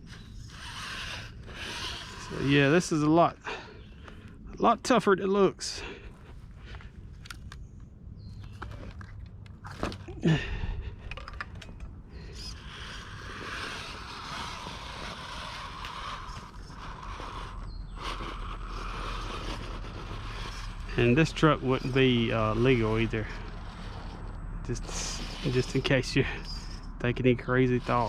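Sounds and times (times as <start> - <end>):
electric motor and gears whirring: 0.0 - 28.0
tires clicking and knocking on stone: 6.1 - 28.0.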